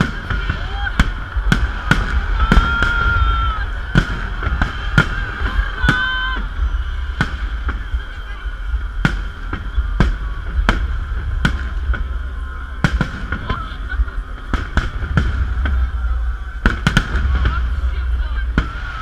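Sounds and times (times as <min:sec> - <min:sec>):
fireworks bangs: 0:00.0 - 0:19.0
low rumble: 0:00.0 - 0:19.0.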